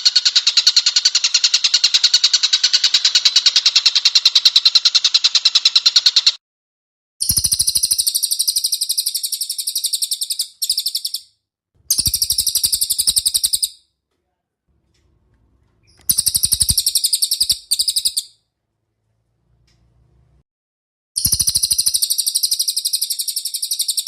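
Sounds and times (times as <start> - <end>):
songbird trilling: 7.2 - 11.3, 11.9 - 13.8, 15.8 - 18.3, 21.2 - 24.0.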